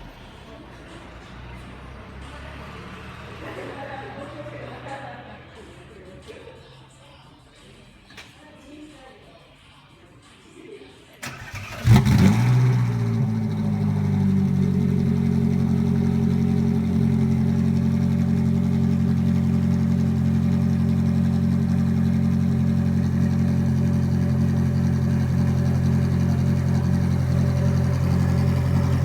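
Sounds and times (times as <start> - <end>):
sports car engine idling: 11.4 - 29.0.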